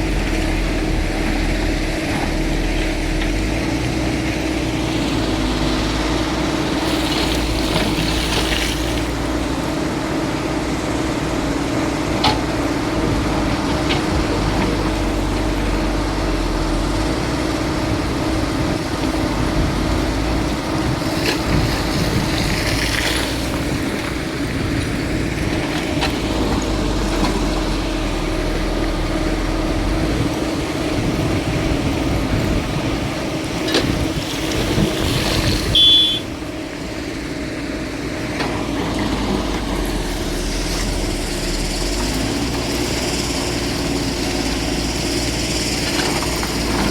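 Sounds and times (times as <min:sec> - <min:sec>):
excavator engine running: 0:00.0 - 0:46.9
hydraulic hissing: 0:06.7 - 0:09.5.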